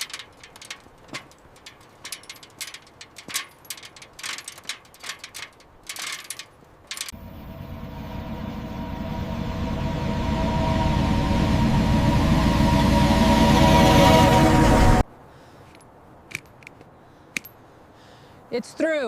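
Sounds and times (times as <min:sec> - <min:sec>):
hand tool ratcheting clicks: 0:00.0 - 0:07.1, 0:15.7 - 0:16.8, 0:17.4 - 0:17.6
low rumble: 0:07.1 - 0:15.0.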